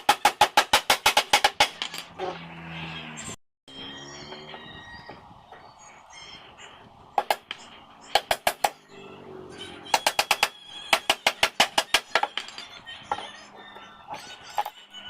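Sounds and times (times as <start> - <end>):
sharp strikes on wooden frame: 0.0 - 2.2, 7.2 - 8.9, 9.9 - 12.5.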